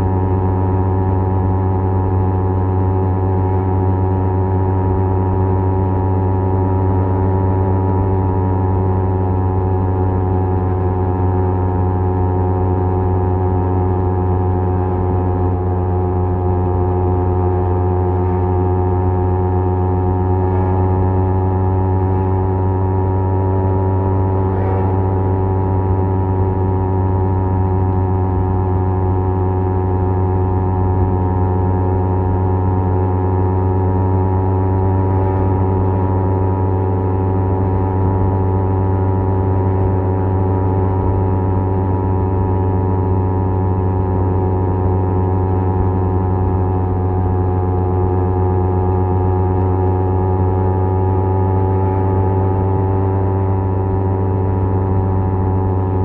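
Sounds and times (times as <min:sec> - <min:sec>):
motorcycle engine cruising: 0:20.0 - 0:56.0.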